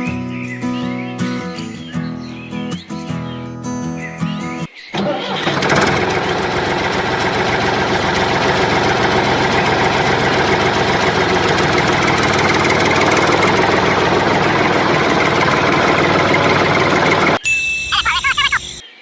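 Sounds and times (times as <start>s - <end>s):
engine idling with knock: 5.5s - 17.4s.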